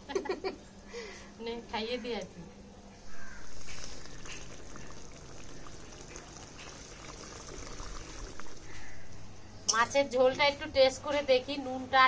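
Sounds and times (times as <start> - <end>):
curry bubbling in a pot: 3.0 - 9.6.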